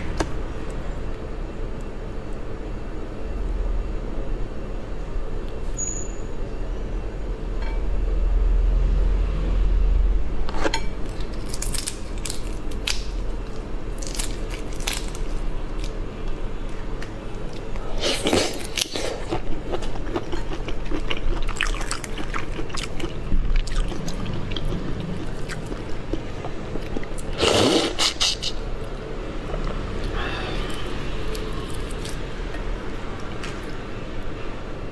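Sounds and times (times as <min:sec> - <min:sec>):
person chewing food: 0:17.4 - 0:28.6.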